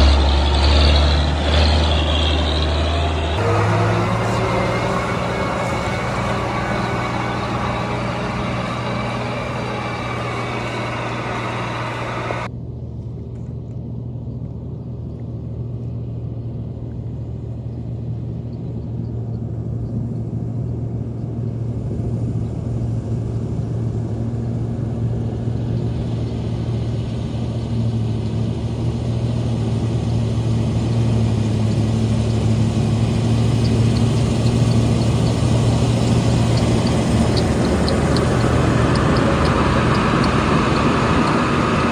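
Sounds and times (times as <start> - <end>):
diesel engine droning: 0.0 - 12.5, 28.3 - 41.9.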